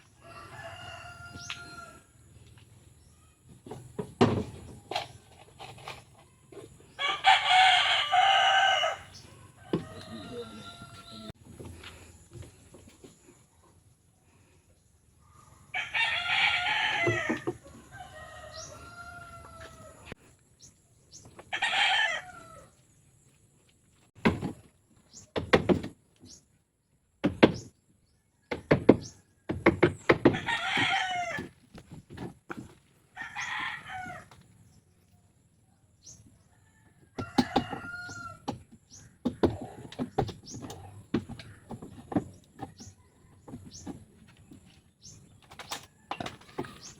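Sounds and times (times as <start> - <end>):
roosters crowing: 0.0 - 2.3, 6.5 - 11.4, 15.6 - 20.2, 21.4 - 22.8, 29.9 - 31.6, 33.1 - 34.6, 36.4 - 44.0.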